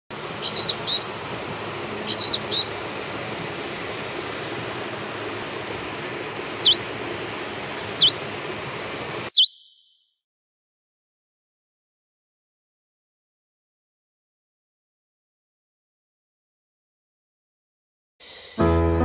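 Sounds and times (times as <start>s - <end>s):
birds twittering: 0.2s - 3.4s, 6.2s - 7.0s, 7.6s - 8.3s, 9.0s - 10.0s
bird whistles sweeping down: 0.4s - 1.4s, 2.1s - 3.1s, 6.3s - 6.9s, 7.6s - 8.2s, 9.0s - 10.0s.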